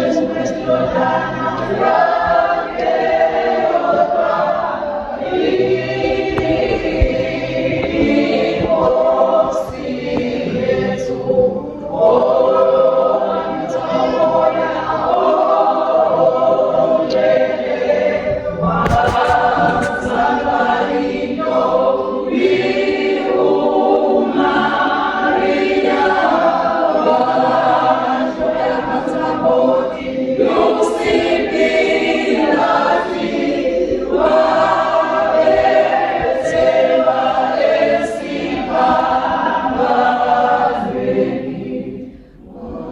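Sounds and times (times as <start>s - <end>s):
choir singing a hymn: 0.0s - 42.9s.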